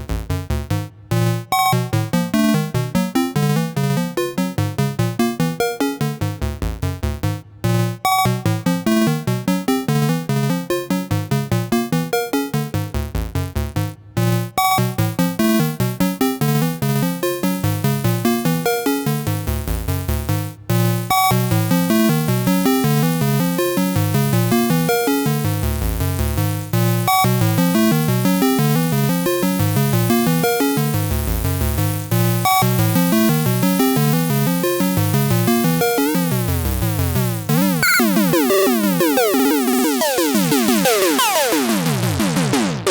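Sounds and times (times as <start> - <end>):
synthesizer playing short repeating notes: 37.5 - 42.9.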